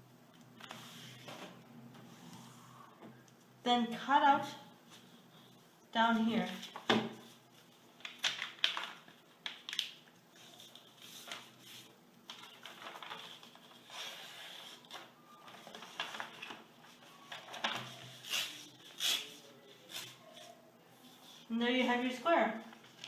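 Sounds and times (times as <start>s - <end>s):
paper rustling and crinkling: 6.3s - 21.5s, 22.6s - 23.0s.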